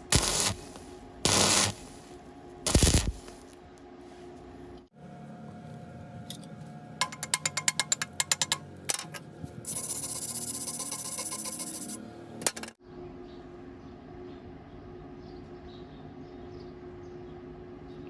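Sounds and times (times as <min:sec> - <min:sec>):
welding arc crackling hiss: 0:00.0 - 0:03.6, 0:09.7 - 0:12.0.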